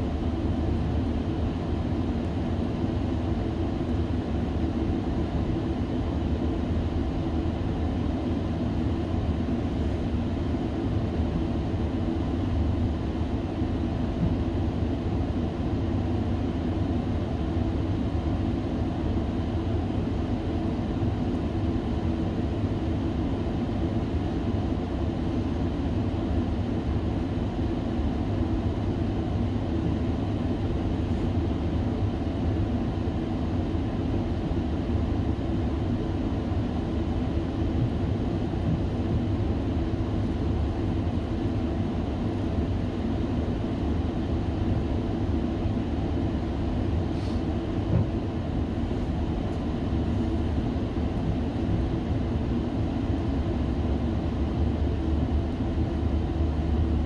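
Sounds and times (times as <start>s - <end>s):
train rumbling on track: 46.8s - 52.5s.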